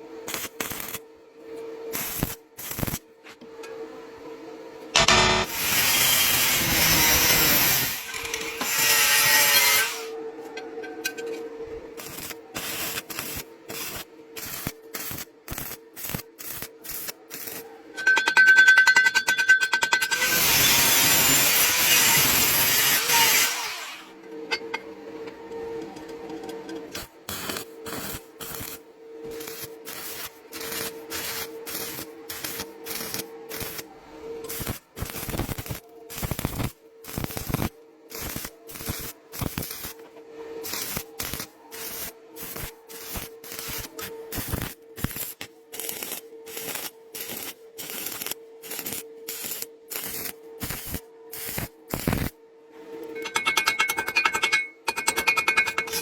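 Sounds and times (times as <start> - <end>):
welding arc crackling: 0.3 - 1.0, 1.9 - 3.0, 5.0 - 9.9, 12.0 - 17.6, 20.3 - 23.8, 27.0 - 33.8, 34.5 - 39.9, 40.6 - 52.3.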